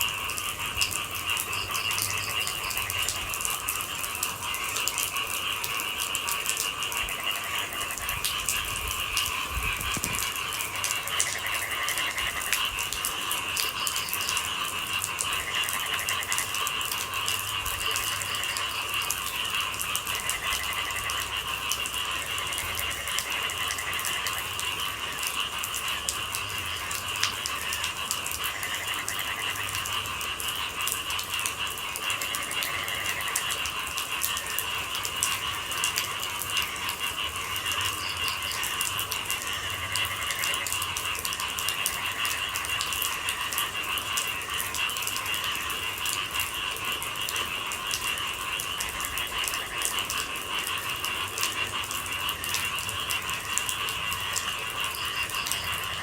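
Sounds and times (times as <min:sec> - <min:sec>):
chorus of night-calling animals: 0:00.0 - 0:56.0
rain pattering: 0:00.0 - 0:56.0.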